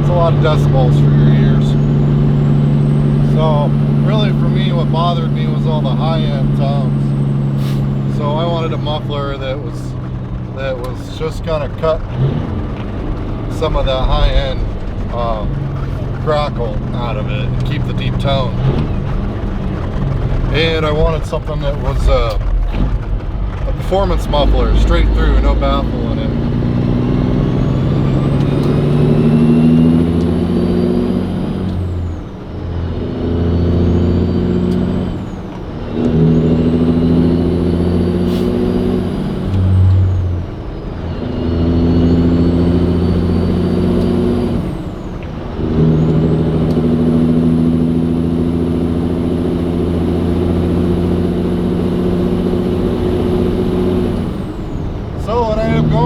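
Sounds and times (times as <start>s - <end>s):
diesel truck engine upshifting: 0.0s - 56.0s.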